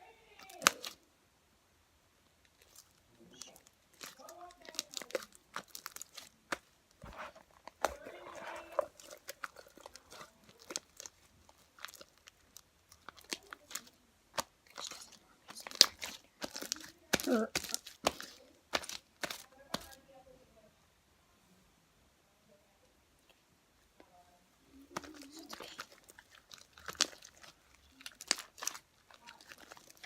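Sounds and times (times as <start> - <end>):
slime squeezed by hand: 24.9 - 30.0.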